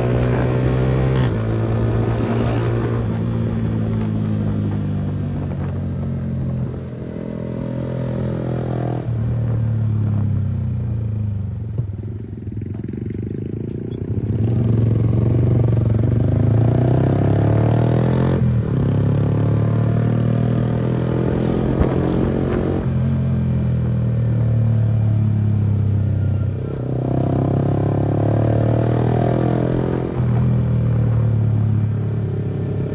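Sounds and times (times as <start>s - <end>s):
motorcycle engine running: 0.0s - 8.2s, 8.8s - 17.6s.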